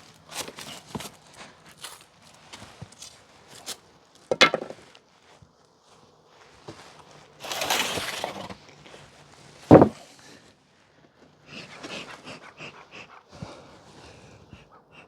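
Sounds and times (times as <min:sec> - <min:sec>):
wooden knock: 0:04.3 - 0:04.8, 0:09.7 - 0:10.0
hive tool scraping wood: 0:07.4 - 0:08.6
hive parts clunking: 0:09.7 - 0:10.0.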